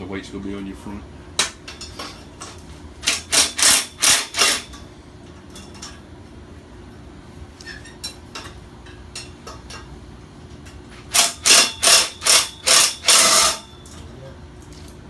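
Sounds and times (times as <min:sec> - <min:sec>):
hand ratchet rasping strokes: 0:03.0 - 0:04.8, 0:11.1 - 0:13.7.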